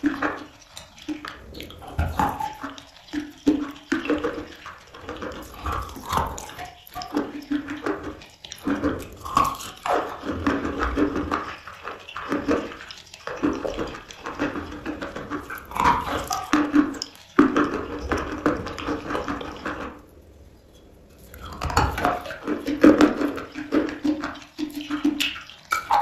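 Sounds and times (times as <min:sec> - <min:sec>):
wet sticky mouth sounds: 0:00.0 - 0:20.0, 0:21.2 - 0:26.0
chalk crunching while chewed: 0:05.2 - 0:07.2.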